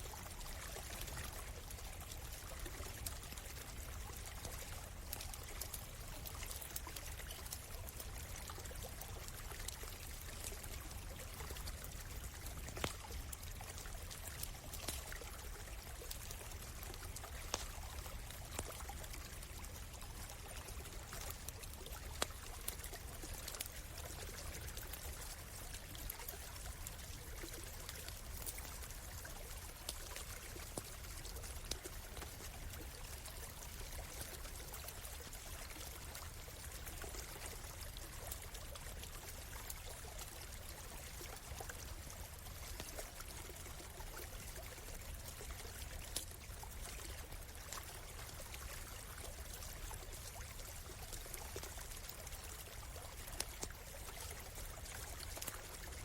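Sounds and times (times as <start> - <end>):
stream flowing: 0.0 - 56.0
campfire crackling: 1.0 - 36.0, 45.1 - 47.8.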